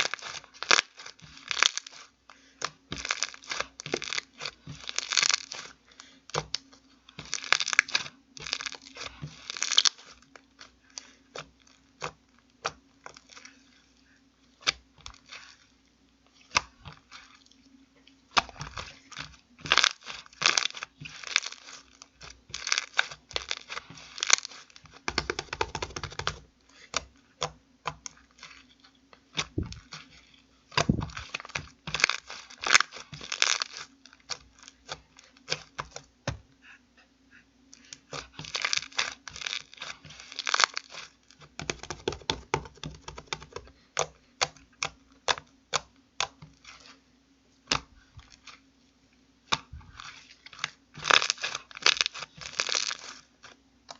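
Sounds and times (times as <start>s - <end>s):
foam slime crackling and popping: 0.0s - 17.6s, 18.3s - 36.1s, 37.8s - 47.0s, 47.6s - 48.6s, 49.4s - 53.9s.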